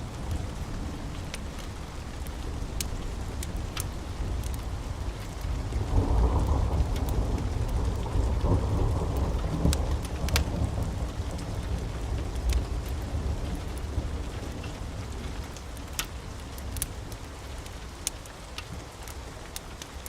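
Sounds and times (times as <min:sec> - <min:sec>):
low rolling thunder: 0:00.0 - 0:14.6
steady rain: 0:00.0 - 0:20.0
wood fire crackling: 0:00.0 - 0:20.0.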